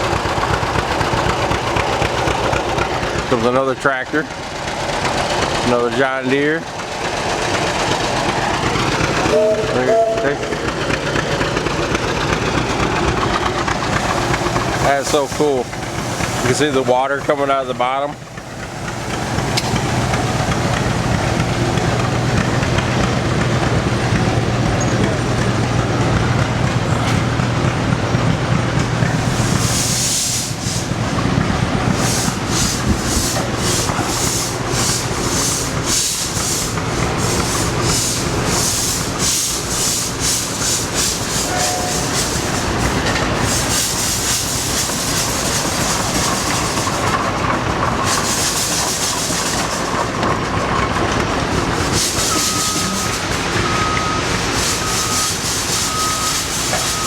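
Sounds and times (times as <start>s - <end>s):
steam engine exhaust chuffs: 0.0s - 57.0s
reversing beeper: 9.2s - 11.4s, 41.4s - 43.2s, 52.1s - 57.0s
steam venting hiss: 13.8s - 22.1s, 29.1s - 50.1s, 51.5s - 57.0s.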